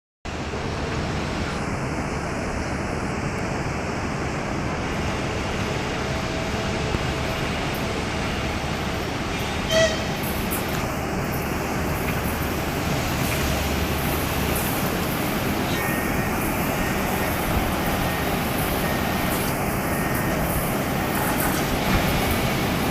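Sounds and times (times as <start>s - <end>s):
passenger train rumbling: 0.3s - 22.9s
loud high-pitched tone: 9.4s - 10.5s, 15.4s - 21.2s.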